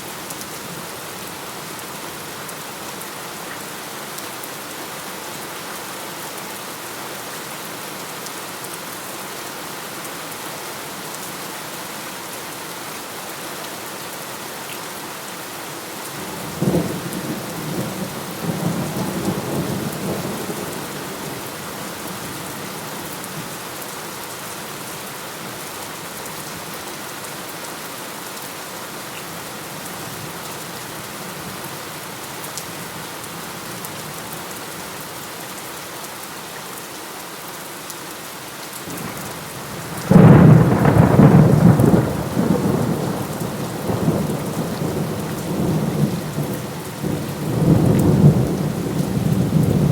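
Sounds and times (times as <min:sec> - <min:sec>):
heavy rain falling: 0:00.0 - 0:49.9
thunderclap with rolling rumble: 0:39.9 - 0:46.5.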